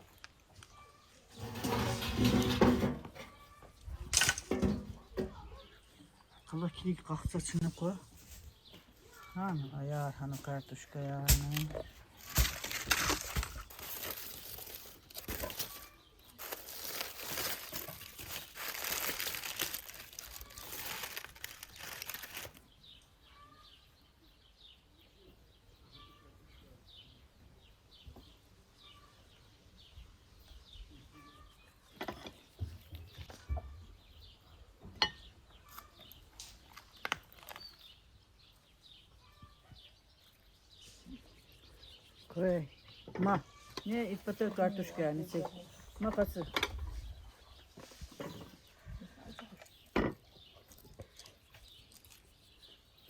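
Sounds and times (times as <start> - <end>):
loud rustling and crinkling: 10.4 - 22.6, 35.7 - 38.0
faint bird chirps: 23.0 - 27.2.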